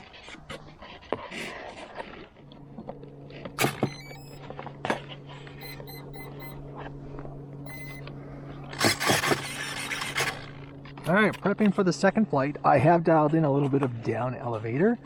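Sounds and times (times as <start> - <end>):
steady low hum: 2.4 - 8.8
high electronic beeps: 3.8 - 4.4, 5.6 - 6.6, 7.7 - 8.0.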